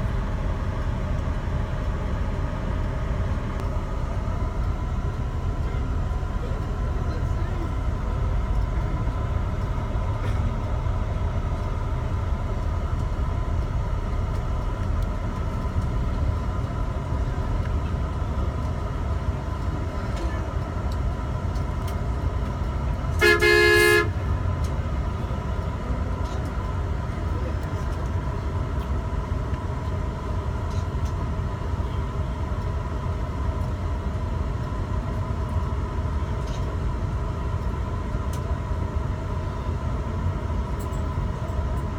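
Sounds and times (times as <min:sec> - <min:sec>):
vehicle road rumble: 0:00.0 - 0:41.9
vehicle horn blast: 0:23.2 - 0:24.2.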